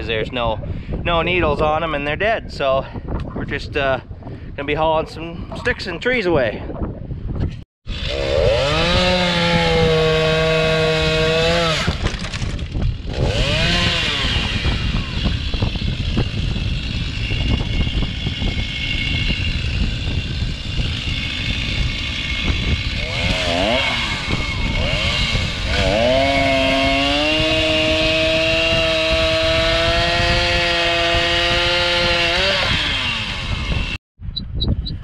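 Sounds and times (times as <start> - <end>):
chainsaw revving and cutting wood: 7.9 - 34.0.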